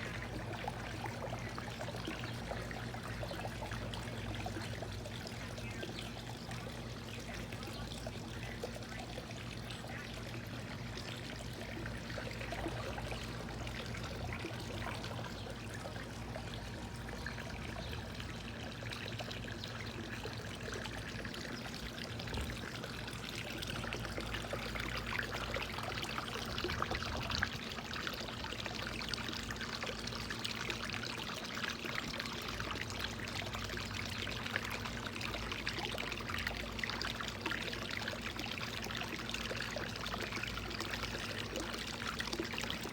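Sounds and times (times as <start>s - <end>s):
low steady hum: 0.0s - 42.9s
running trickling water: 0.0s - 42.9s.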